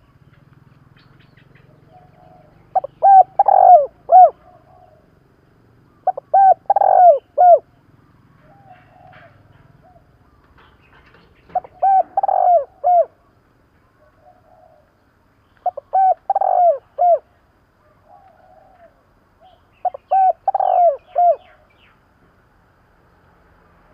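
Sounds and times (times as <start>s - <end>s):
dove cooing: 1.4s - 5.3s, 5.9s - 13.3s, 14.0s - 15.0s, 15.6s - 21.7s.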